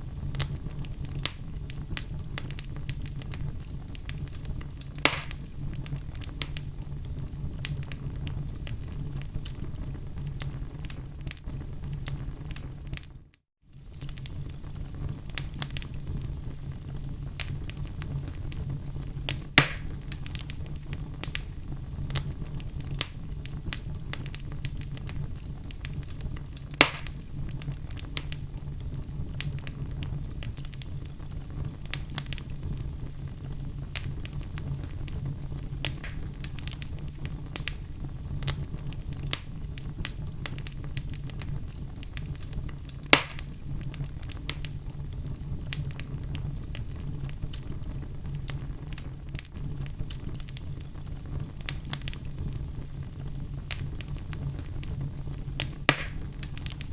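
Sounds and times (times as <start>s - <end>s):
fire flames rumbling: 0.0s - 56.9s
wood fire crackling and popping: 0.0s - 56.9s.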